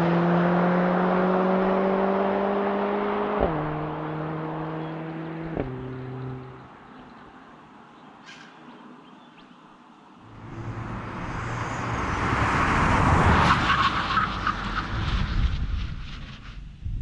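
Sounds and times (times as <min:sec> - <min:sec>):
car engine and exhaust: 0:00.0 - 0:08.6, 0:10.2 - 0:17.0
exhaust pops: 0:05.4 - 0:06.1.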